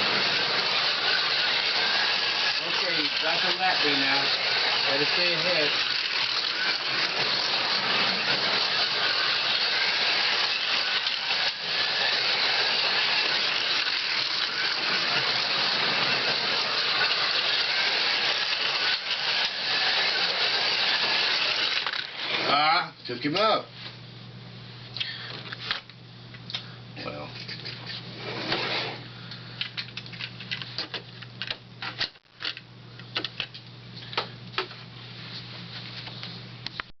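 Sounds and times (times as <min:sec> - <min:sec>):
slot cars racing on track: 0:00.0 - 0:22.4
steady low hum: 0:00.0 - 0:36.8.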